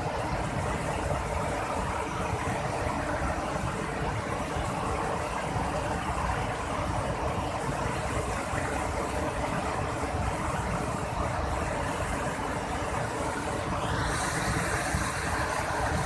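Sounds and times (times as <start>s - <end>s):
waterfall rushing: 13.7s - 16.0s.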